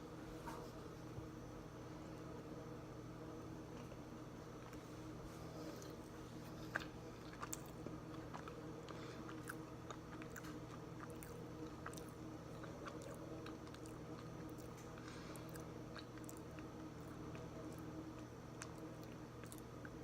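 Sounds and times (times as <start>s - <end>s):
steady low hum: 0.0s - 20.0s
chewing clicks: 6.6s - 20.0s.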